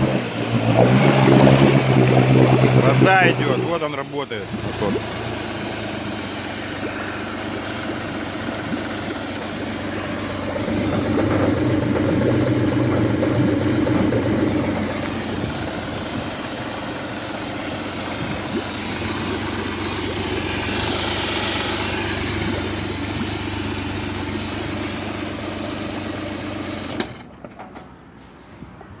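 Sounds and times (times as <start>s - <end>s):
outboard motor idling: 0.0s - 27.4s.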